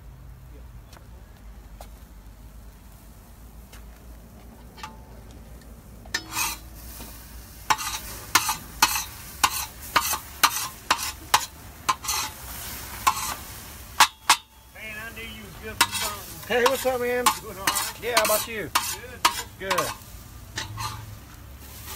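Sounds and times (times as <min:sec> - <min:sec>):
faint sizzle: 0:02.2 - 0:21.9
spatula scraping a pan: 0:06.1 - 0:14.7, 0:15.5 - 0:21.9.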